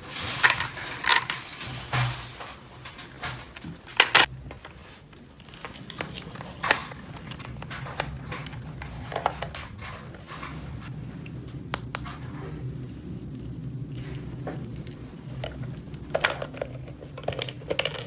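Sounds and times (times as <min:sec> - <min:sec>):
plastic toy pieces clicking: 0:03.9 - 0:04.3, 0:14.6 - 0:18.0.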